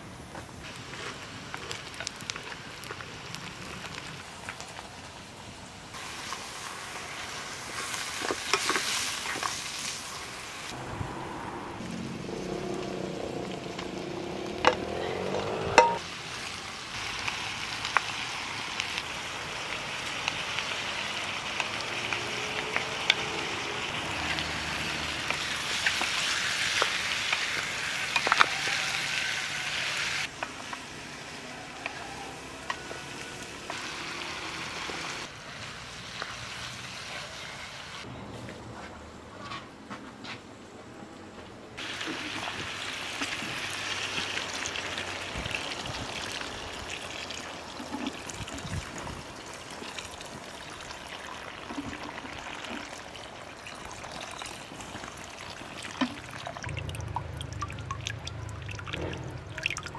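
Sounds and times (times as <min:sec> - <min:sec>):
meat and peas sizzling in a pot: 0:00.6 - 0:10.8, 0:15.8 - 0:38.1, 0:41.8 - 0:56.3.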